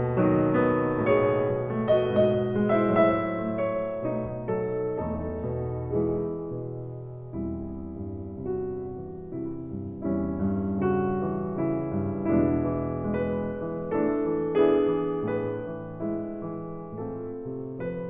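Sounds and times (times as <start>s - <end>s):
slow piano chords: 0.0s - 18.0s.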